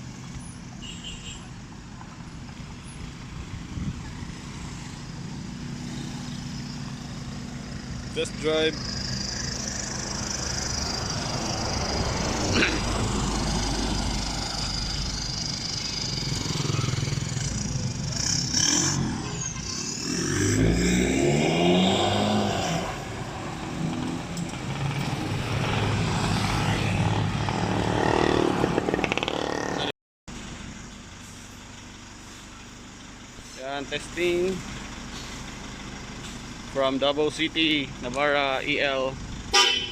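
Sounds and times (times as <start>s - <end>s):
diesel truck accelerating: 2.2s - 39.6s.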